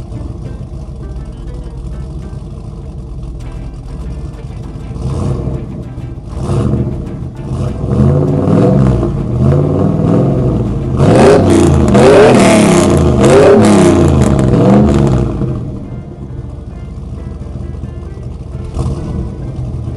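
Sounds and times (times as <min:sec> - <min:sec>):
engine revving: 0:00.0 - 0:19.9.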